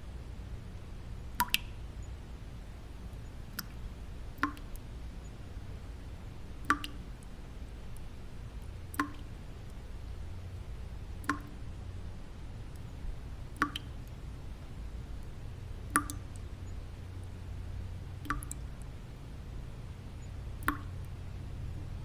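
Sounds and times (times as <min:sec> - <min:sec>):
low white noise: 0:00.0 - 0:22.0
water drops falling: 0:01.4 - 0:01.8, 0:04.4 - 0:04.8, 0:06.6 - 0:07.0, 0:08.9 - 0:09.3, 0:11.2 - 0:11.6, 0:13.5 - 0:14.2, 0:15.9 - 0:16.5, 0:18.2 - 0:18.9, 0:20.6 - 0:21.2.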